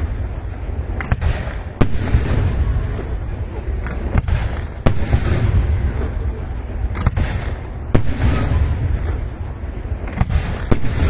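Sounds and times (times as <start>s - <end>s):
fireworks bangs: 0.0s - 11.0s
low rumble: 0.0s - 11.0s.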